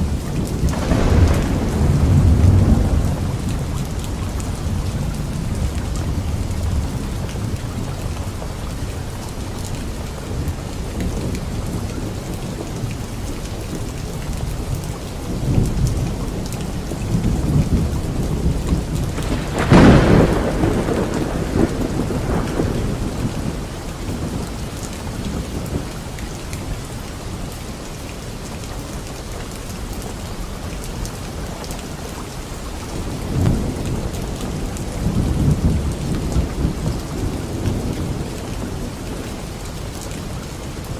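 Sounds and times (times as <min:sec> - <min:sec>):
thunder rumbling: 0:00.0 - 0:12.9, 0:15.3 - 0:26.2, 0:32.9 - 0:40.9
light rain on leaves: 0:00.0 - 0:40.9
sharp thunderclap: 0:00.5 - 0:07.5, 0:17.4 - 0:24.5.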